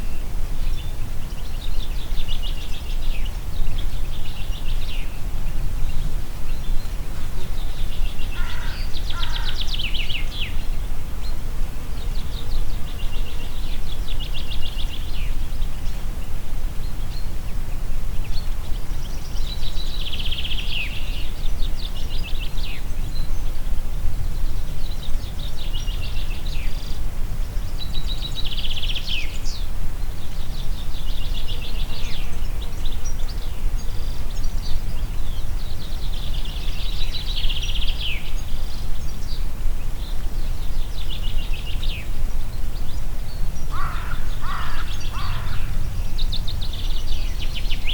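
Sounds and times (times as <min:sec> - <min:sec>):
wind rumbling in forest: 0:00.0 - 0:47.9
songbird trilling: 0:43.6 - 0:47.9.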